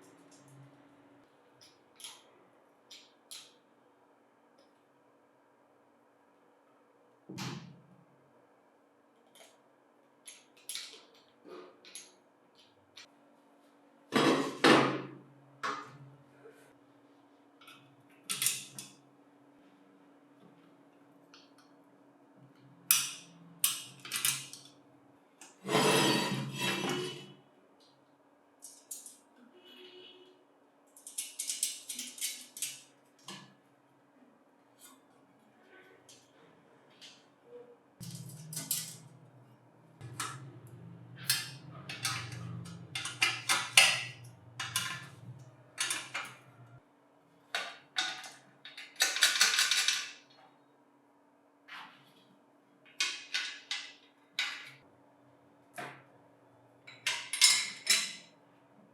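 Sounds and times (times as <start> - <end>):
metal parts clattering: 31.0 - 32.9, 38.0 - 39.1, 41.3 - 42.4, 48.0 - 50.2.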